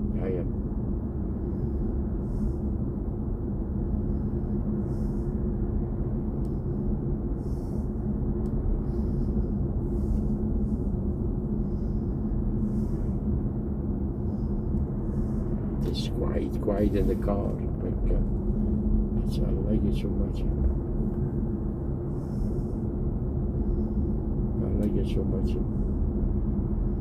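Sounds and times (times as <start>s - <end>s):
low electric hum: 0.0s - 27.0s
road and tyre rumble: 0.0s - 27.0s.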